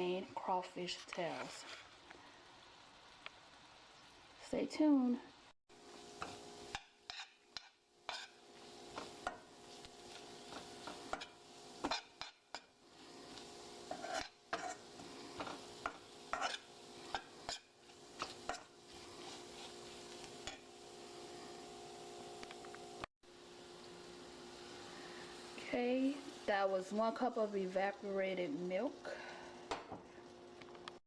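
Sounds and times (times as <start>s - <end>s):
food sizzling: 0.0s - 31.0s
spoon scraping a pan: 0.8s - 2.0s, 5.9s - 20.7s.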